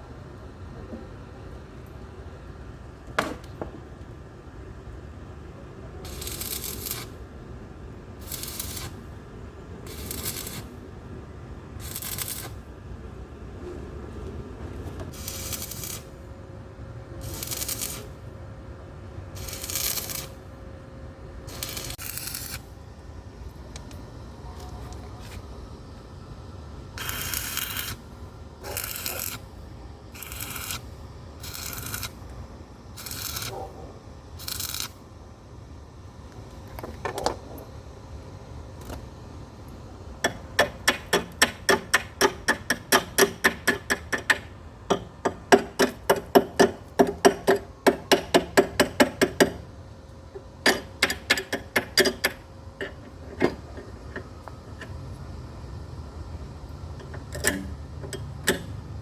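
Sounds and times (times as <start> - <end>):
sharp knocks on metal: 40.3 - 49.6.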